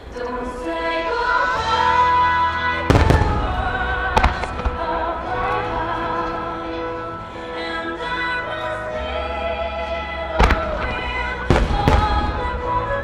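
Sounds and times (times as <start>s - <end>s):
choral music: 0.0s - 13.0s
firework shells booming: 2.9s - 5.2s, 10.4s - 12.6s.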